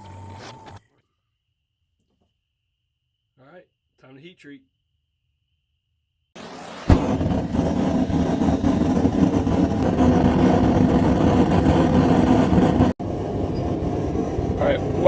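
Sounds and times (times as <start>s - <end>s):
forge roaring: 6.4s - 15.0s.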